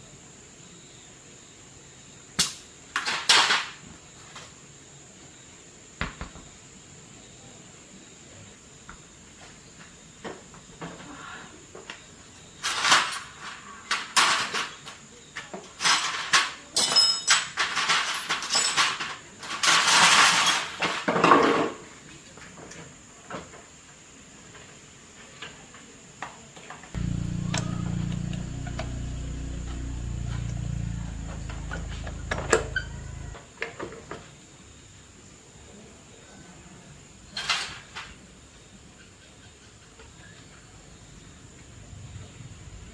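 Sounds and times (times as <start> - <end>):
deep low sound shifting pitch: 27.0 - 33.4.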